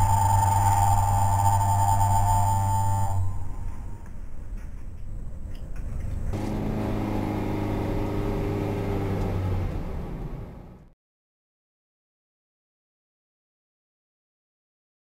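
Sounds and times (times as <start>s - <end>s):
low engine drone: 0.0s - 11.0s
car engine and road noise: 3.1s - 11.0s.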